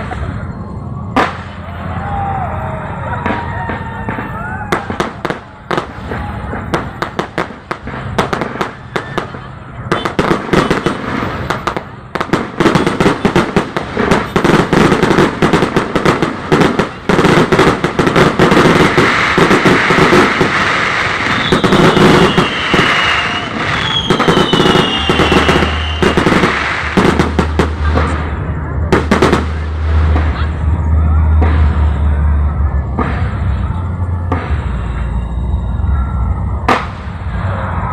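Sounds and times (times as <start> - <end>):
fireworks bangs and crackling: 0.0 - 37.9
firework whistles gliding down: 17.1 - 27.4, 34.5 - 37.9.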